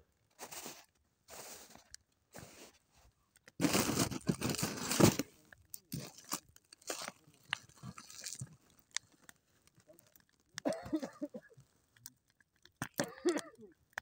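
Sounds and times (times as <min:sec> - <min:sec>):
kindling rustling crunch: 0:03.6 - 0:11.0.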